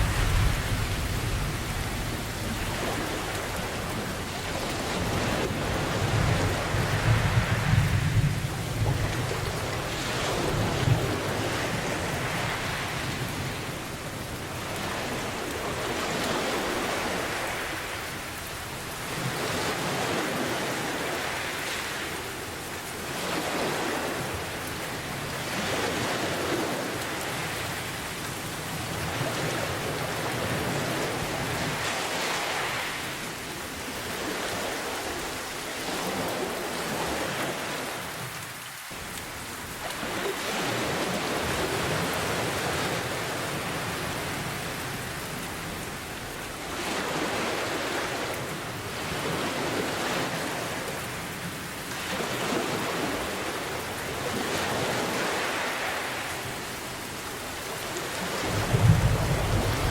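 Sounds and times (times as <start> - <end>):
steady rain pouring: 0.0 - 59.9.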